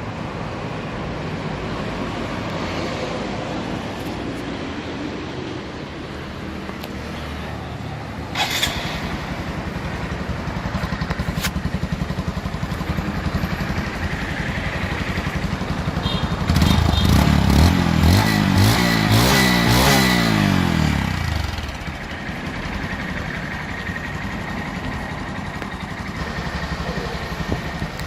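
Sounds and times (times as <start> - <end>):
motorcycle engine idling: 7.5 - 18.5, 19.9 - 28.0.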